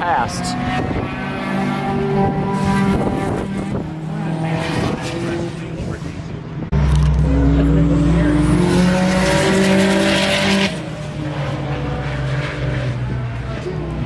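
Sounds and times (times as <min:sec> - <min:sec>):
race car engine at full throttle: 0:00.0 - 0:14.0.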